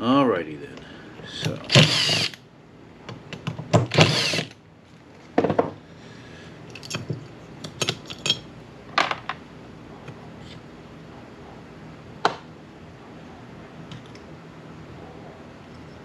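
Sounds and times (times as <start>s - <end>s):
hand tools clicking and scraping: 3.4s - 4.5s.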